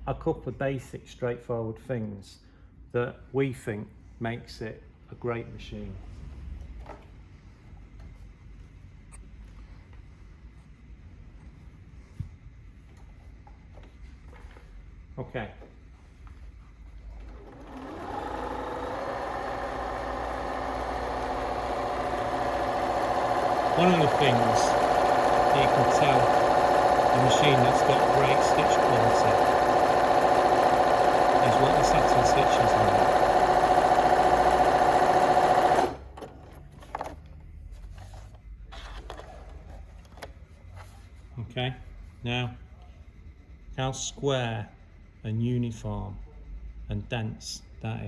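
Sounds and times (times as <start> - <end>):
sewing machine running: 17.2 - 36.2.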